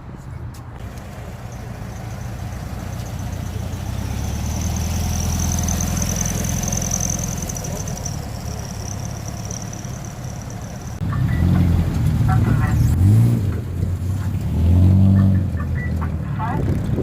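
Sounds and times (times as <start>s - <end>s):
car engine at low revs passing: 0.8s - 17.0s.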